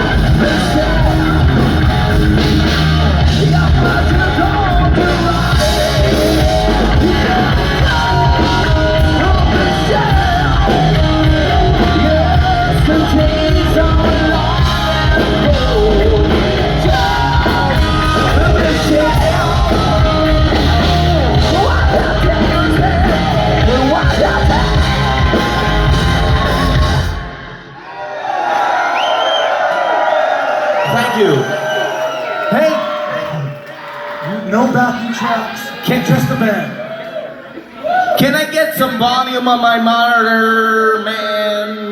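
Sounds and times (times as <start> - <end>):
hard rock band playing live: 0.0 - 27.7.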